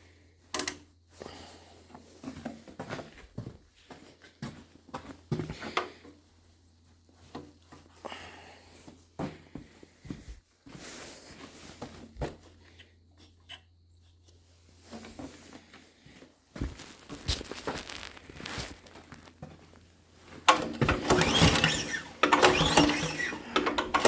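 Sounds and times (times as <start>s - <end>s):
knocks and clicks of handling: 0.5s - 0.8s, 20.4s - 24.0s.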